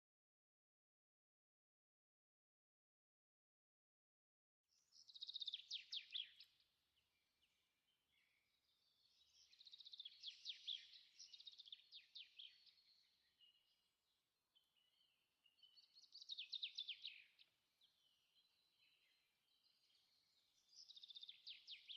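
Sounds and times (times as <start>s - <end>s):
small birds twittering: 4.7s - 21.9s.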